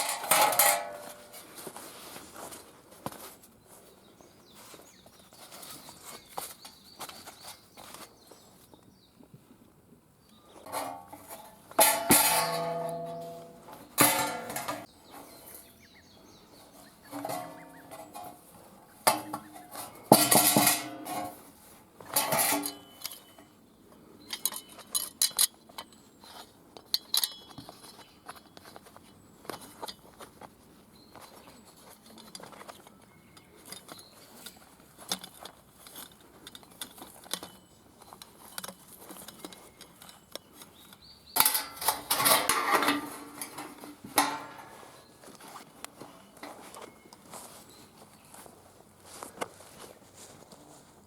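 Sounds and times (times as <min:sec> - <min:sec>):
metal clinking and scraping: 0:00.0 - 0:02.6, 0:10.6 - 0:15.7, 0:17.0 - 0:23.5, 0:24.2 - 0:30.2, 0:31.2 - 0:45.6.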